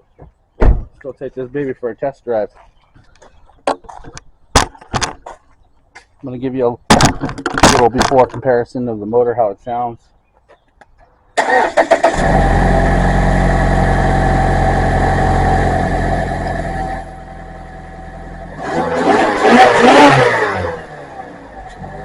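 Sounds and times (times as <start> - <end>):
starter cranking engine: 11.4 - 14.0
car engine idling: 12.1 - 19.1.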